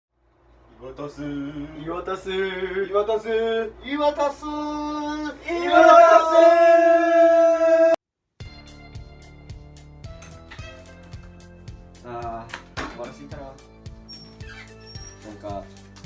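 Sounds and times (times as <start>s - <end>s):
man singing: 0.8s - 8.0s.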